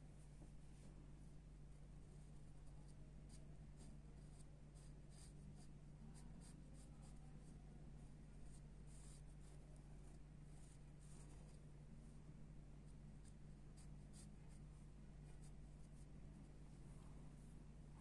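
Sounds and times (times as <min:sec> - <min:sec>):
low electrical hum: 0:00.0 - 0:18.0
pencil scratching on paper: 0:02.6 - 0:07.5, 0:08.4 - 0:11.6, 0:13.2 - 0:14.6.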